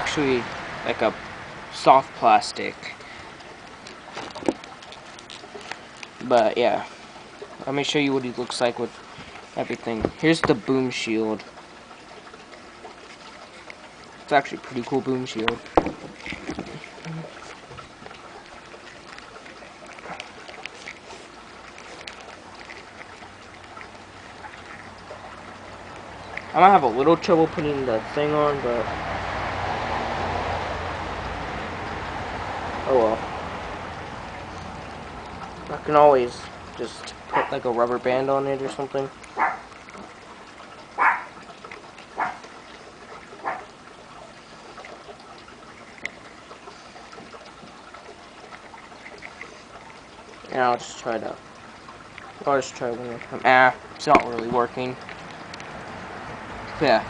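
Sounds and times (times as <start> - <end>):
dog barking: 37.3 - 37.6, 39.4 - 39.6, 41.0 - 41.3, 42.2 - 42.4, 43.4 - 43.7.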